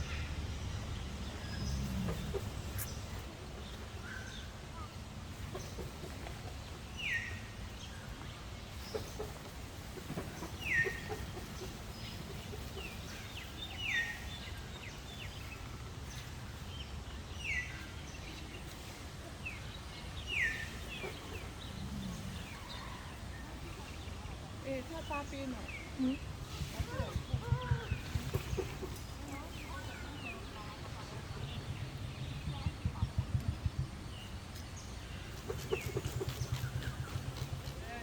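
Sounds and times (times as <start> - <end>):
low background rumble: 0.0 - 38.0.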